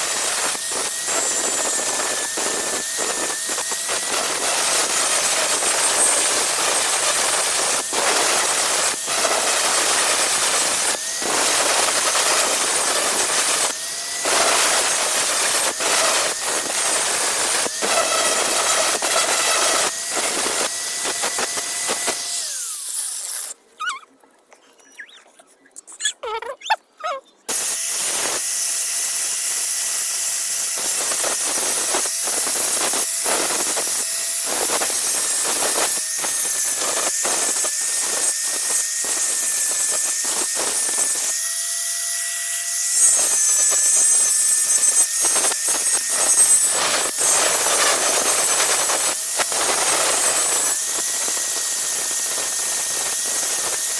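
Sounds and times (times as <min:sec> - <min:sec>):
angle grinder grinding steel: 0:00.0 - 0:23.6, 0:27.5 - 0:53.9
faint squeaks: 0:23.8 - 0:27.5.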